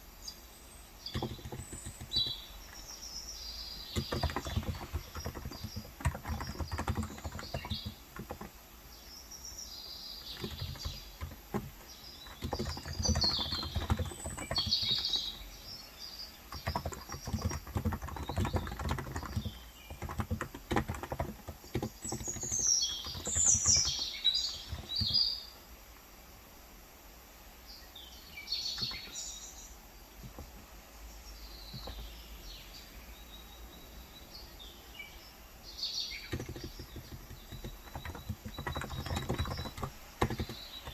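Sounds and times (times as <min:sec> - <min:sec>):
birds chirping: 0:00.0 - 0:26.5, 0:27.6 - 0:40.9
soft keyboard typing: 0:01.0 - 0:03.0, 0:03.7 - 0:08.6, 0:10.2 - 0:15.8, 0:16.4 - 0:25.3, 0:28.8 - 0:29.2, 0:30.2 - 0:30.7, 0:31.7 - 0:32.2, 0:36.2 - 0:40.9.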